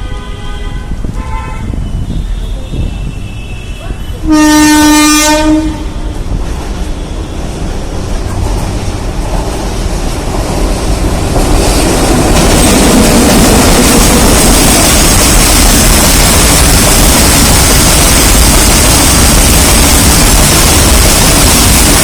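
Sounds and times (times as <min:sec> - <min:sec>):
locomotive horn blast: 0:00.0 - 0:06.3
freight train running past: 0:00.0 - 0:22.0.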